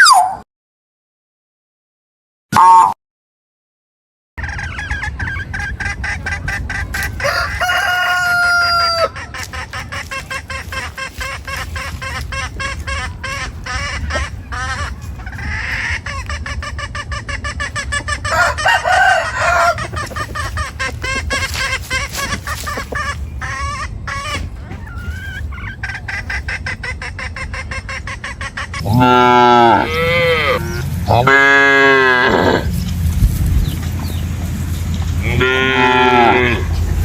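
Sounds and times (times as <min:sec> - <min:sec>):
chickens clucking: 0:04.4 - 0:37.0
rooster crowing: 0:07.2 - 0:09.2, 0:18.2 - 0:20.0.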